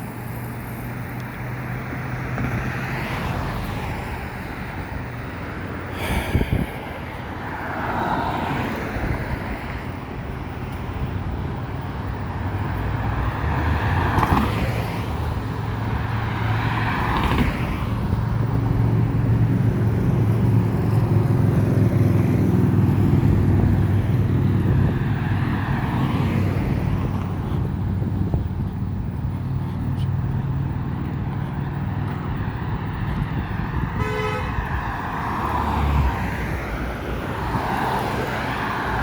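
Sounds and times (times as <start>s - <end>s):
outdoor background noise: 0.0s - 39.0s
engine humming: 9.0s - 39.0s.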